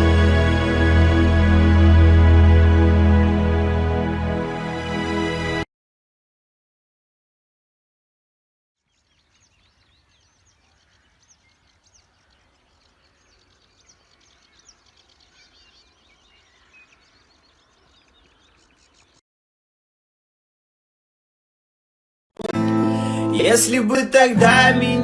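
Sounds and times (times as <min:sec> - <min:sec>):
small birds chirping: 0:08.8 - 0:19.2.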